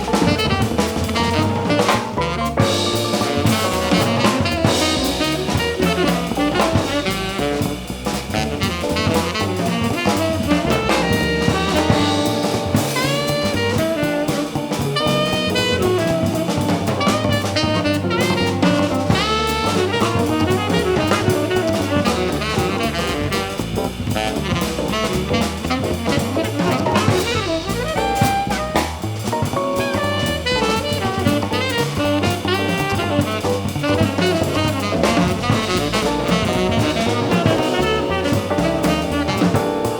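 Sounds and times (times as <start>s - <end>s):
bass line: 0.0s - 39.9s
drum kit: 0.0s - 39.9s
horn playing melodic runs: 0.1s - 39.9s.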